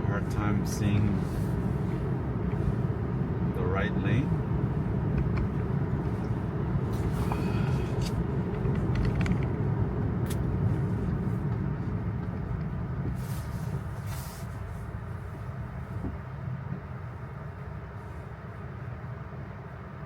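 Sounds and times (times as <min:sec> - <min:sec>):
short hissing swishes: 0:13.2 - 0:14.6.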